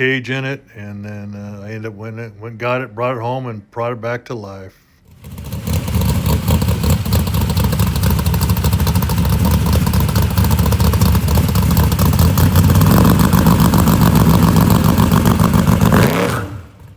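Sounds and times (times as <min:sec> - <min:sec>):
pickup truck engine running: 0:05.1 - 0:16.9.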